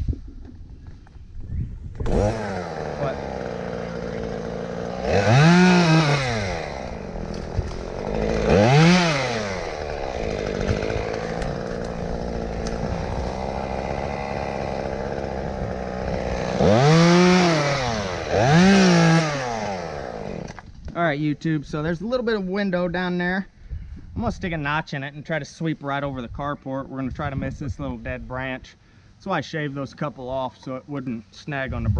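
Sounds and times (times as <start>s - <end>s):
chainsaw idling and revving: 2.0s - 20.6s.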